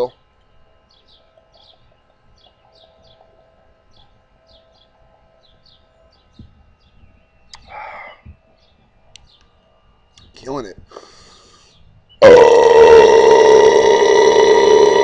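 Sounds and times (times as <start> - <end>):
small bird chirping: 0.4 - 10.3
loud burst of noise: 12.2 - 15.0.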